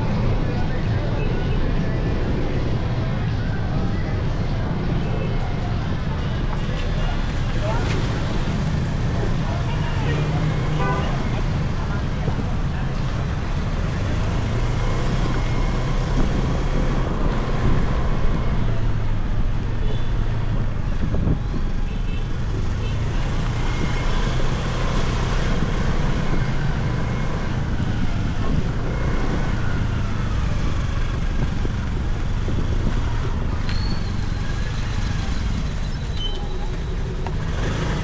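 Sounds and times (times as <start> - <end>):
street traffic noise: 0.0 - 38.0
motorcycle engine running: 22.3 - 38.0.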